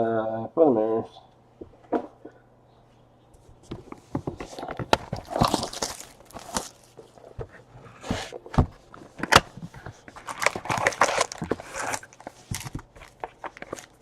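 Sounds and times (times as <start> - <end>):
cards sliding and rustling: 3.6 - 14.0.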